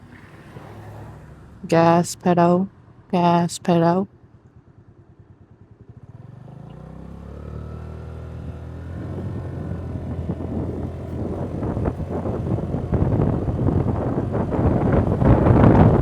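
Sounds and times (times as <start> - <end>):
scooter engine accelerating: 4.3 - 16.0
wind buffeting microphone: 8.5 - 16.0.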